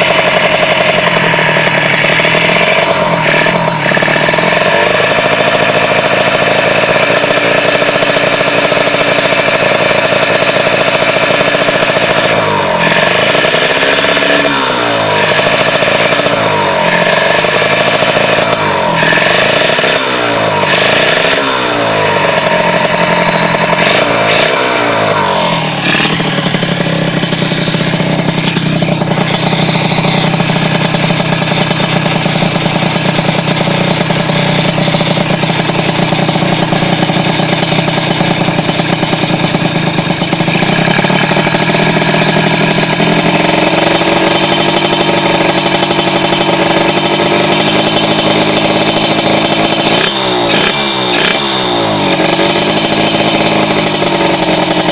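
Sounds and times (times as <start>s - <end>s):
motorcycle engine revving and idling: 0.0s - 54.9s.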